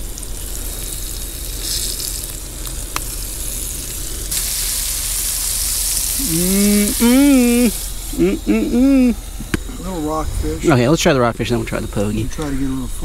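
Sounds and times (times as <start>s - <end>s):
squid frying in hot oil: 0.0s - 10.2s
man humming: 6.2s - 9.8s.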